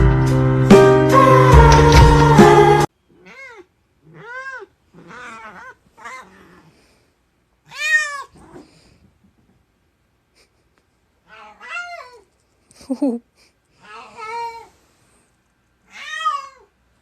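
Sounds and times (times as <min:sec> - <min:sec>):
cat meowing: 0:03.1 - 0:06.7, 0:07.6 - 0:08.6, 0:11.2 - 0:12.3, 0:15.8 - 0:16.8.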